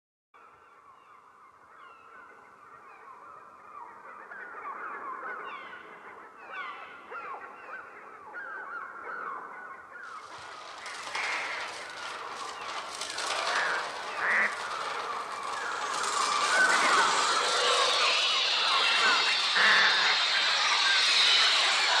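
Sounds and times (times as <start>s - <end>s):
wings flapping: 10.1s - 22.0s
electronic shrieking bird cries: 10.2s - 22.0s.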